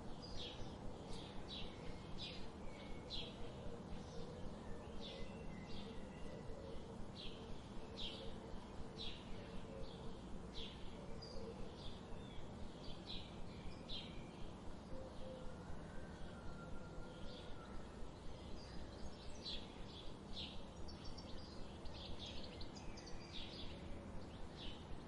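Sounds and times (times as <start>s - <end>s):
background hiss: 0.0s - 25.0s.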